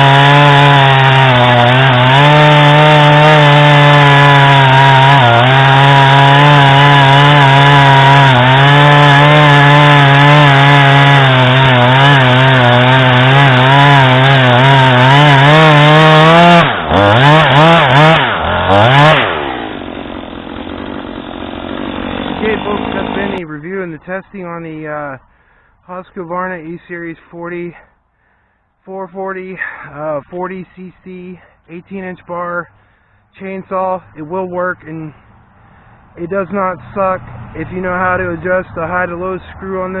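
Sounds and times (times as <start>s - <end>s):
chainsaw cutting wood: 0.0s - 23.4s.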